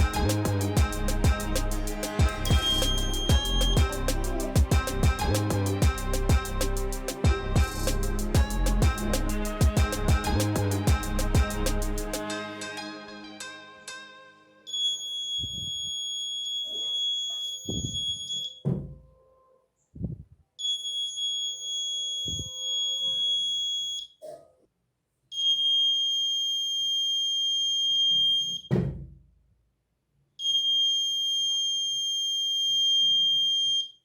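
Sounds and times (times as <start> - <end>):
high-pitched buzzer tone: 2.4 - 6.5.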